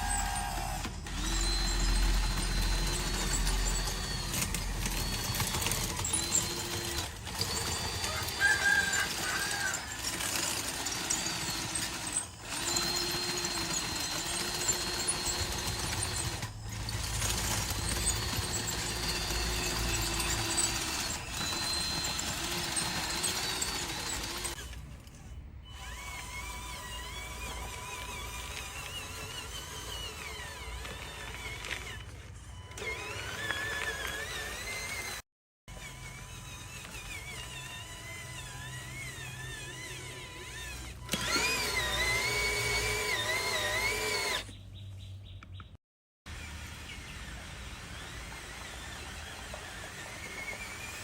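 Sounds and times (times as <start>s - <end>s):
electric motors whining: 0.0s - 44.6s, 46.3s - 51.0s.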